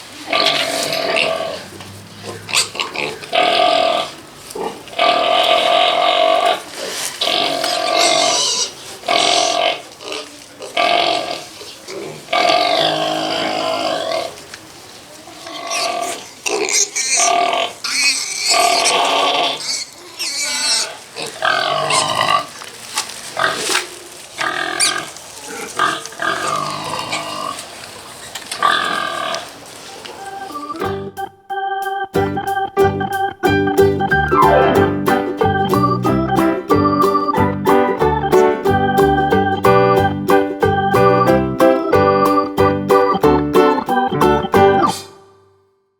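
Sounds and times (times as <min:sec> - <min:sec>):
pigs squealing: 0:00.3 - 0:14.4, 0:15.4 - 0:22.6, 0:23.4 - 0:27.7, 0:28.3 - 0:30.9.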